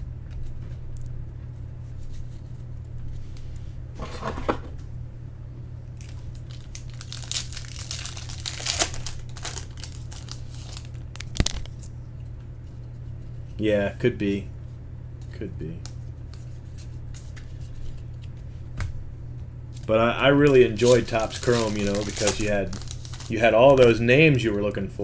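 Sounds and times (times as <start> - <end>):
low electrical hum: 0.0 - 25.0
foil wrapper tearing and crinkling: 6.0 - 11.8, 20.5 - 24.0.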